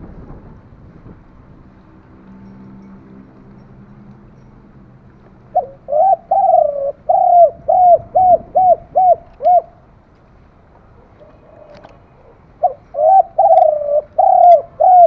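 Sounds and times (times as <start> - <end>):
dove cooing: 5.5 - 9.8, 11.0 - 15.0.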